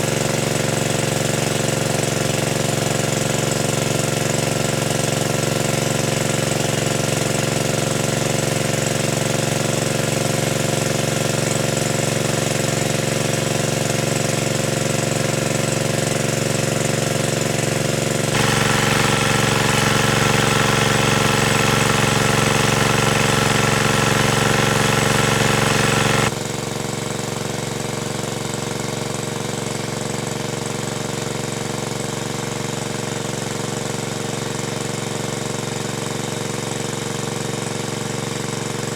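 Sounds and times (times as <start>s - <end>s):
small engine running: 0.0s - 27.0s.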